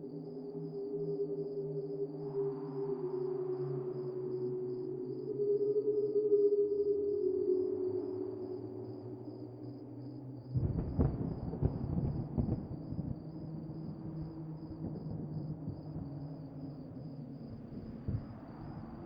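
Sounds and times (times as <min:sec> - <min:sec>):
thunder rumbling: 0:10.6 - 0:13.3.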